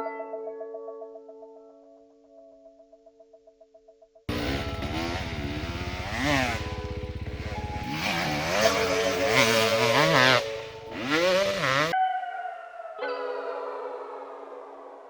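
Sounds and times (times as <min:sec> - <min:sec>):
music tones: 0:04.3 - 0:11.9
motorbike engine revving: 0:04.3 - 0:12.0.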